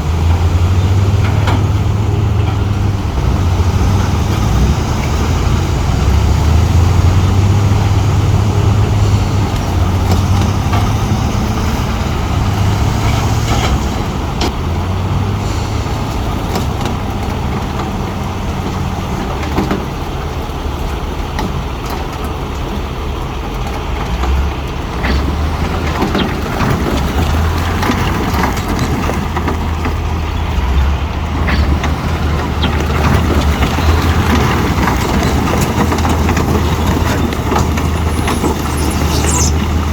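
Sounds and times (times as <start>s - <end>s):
diesel bulldozer engine working: 0.0s - 39.9s
steel tracks clanking on stone: 7.6s - 39.1s.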